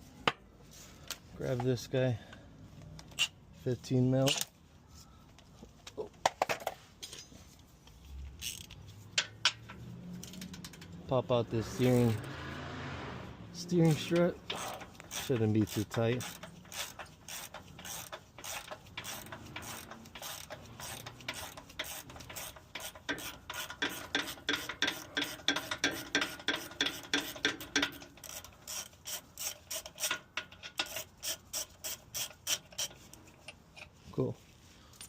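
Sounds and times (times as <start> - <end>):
hand ratchet clicking: 8.4 - 11.0, 13.9 - 33.9.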